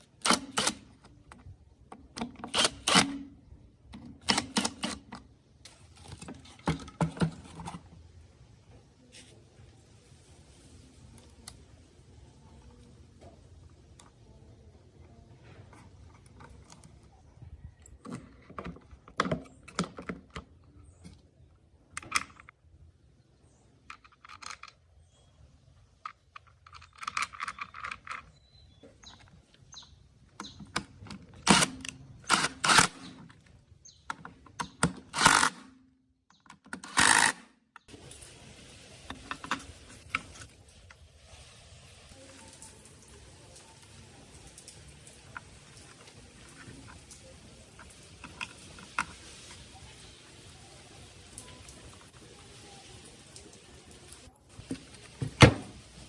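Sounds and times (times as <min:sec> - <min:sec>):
small hard parts clicking: 0:23.8 - 0:37.9, 0:44.6 - 0:49.6.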